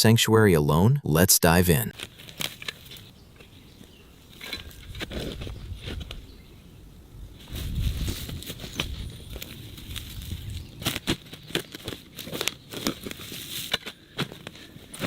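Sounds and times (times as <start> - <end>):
shovel crunching forest debris: 7.4 - 15.0.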